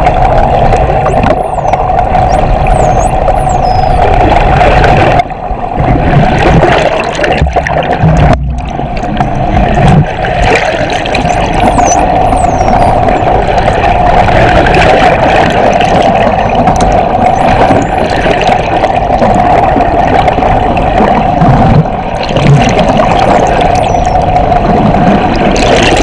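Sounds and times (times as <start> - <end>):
boat engine hum underwater: 0.0 - 26.0
dolphin whistles: 1.4 - 4.0, 11.2 - 13.0, 23.8 - 24.2.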